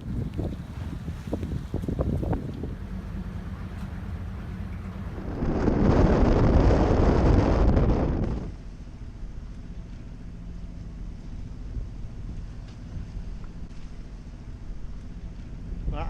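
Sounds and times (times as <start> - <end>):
steady low drone: 0.0 - 16.0
loud rushing noise: 4.9 - 8.5.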